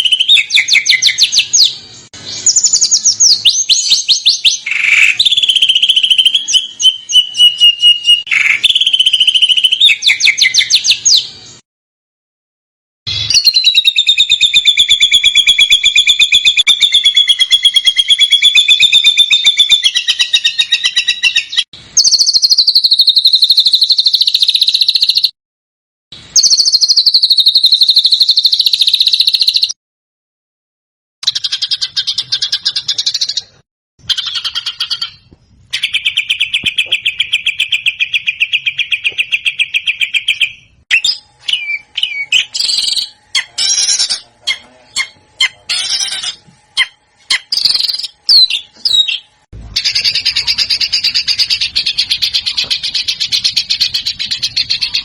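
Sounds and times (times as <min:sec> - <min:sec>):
songbird fast trills: 0:13.1 - 0:25.3, 0:26.4 - 0:29.8.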